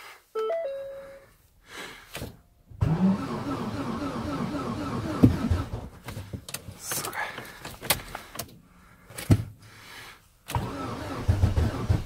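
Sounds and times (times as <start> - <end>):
dashboard warning chime: 0.4 - 1.3
car engine cranking: 2.8 - 8.5, 10.5 - 12.0.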